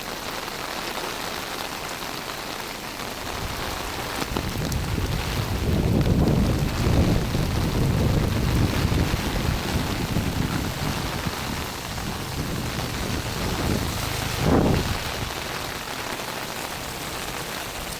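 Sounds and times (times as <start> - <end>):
rain pattering on surfaces: 0.0 - 17.9
low rumble: 3.4 - 16.0.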